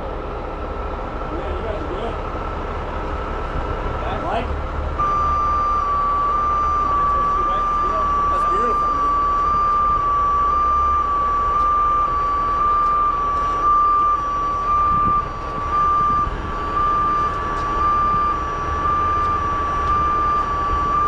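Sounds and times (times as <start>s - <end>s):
crane engine rumble: 0.0s - 21.0s
crane warning alarm tone: 5.0s - 21.0s.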